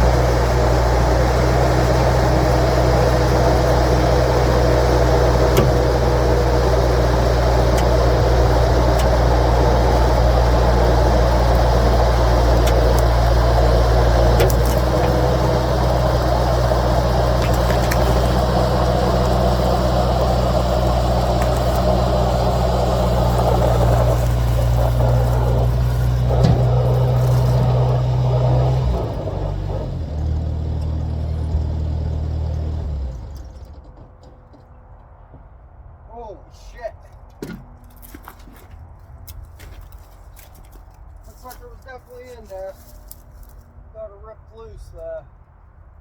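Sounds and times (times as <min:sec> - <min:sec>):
skid steer engine running: 0:00.0 - 0:35.4.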